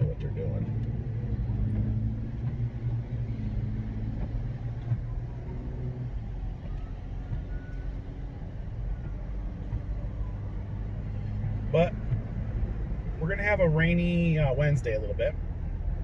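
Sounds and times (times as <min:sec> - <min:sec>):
car cabin road noise: 0:00.0 - 0:16.0.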